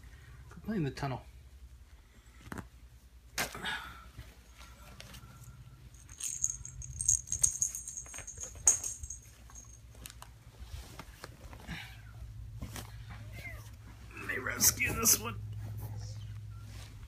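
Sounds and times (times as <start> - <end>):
small jingle bell jingling: 5.4 - 9.9
kittens playing taps and rustles: 5.9 - 11.7.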